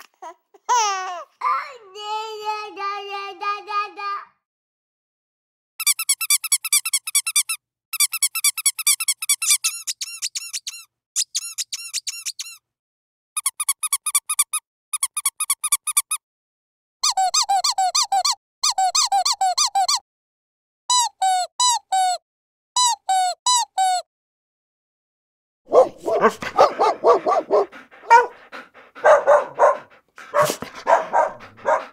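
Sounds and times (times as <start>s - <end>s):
squeaky dog toy squeaking: 5.8s - 12.6s, 13.4s - 16.2s, 17.0s - 20.0s, 20.9s - 22.2s, 22.8s - 24.0s.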